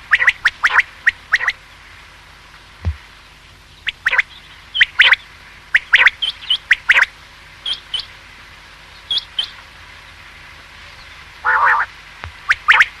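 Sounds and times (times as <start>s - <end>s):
quail calling: 0.0s - 1.6s, 3.8s - 8.2s, 9.1s - 9.6s, 11.4s - 13.0s.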